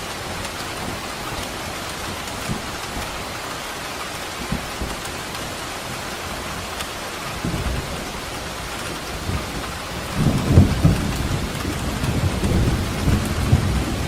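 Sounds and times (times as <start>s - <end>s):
steady rain: 0.0s - 14.0s
thunder rumbling: 7.4s - 14.0s.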